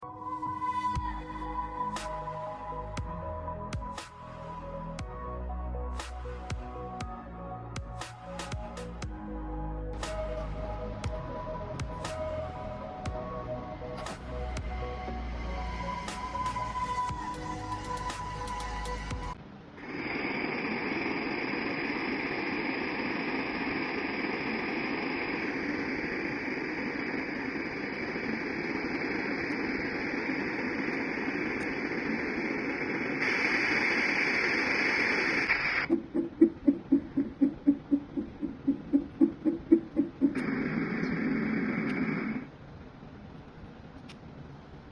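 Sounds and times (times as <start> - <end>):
white noise machine hiss: 0.0 - 44.9
rhythmic pulsing sound: 6.0 - 19.4, 20.1 - 42.5.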